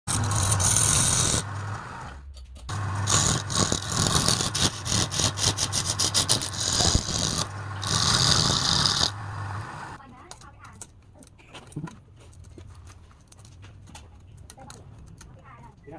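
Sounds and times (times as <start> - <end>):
turning tool hissing cuts: 0.1 - 2.1, 2.7 - 10.0
wood lathe humming: 0.1 - 2.1, 2.7 - 10.0.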